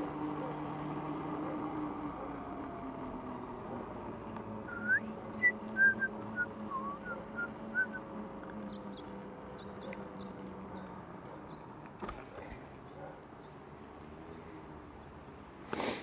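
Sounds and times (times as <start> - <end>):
person whistling: 4.7 - 8.0.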